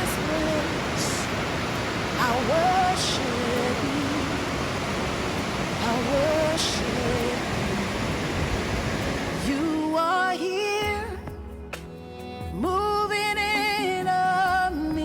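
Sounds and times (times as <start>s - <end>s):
rush of falling water: 0.0s - 10.8s
slow worship song: 0.0s - 15.0s.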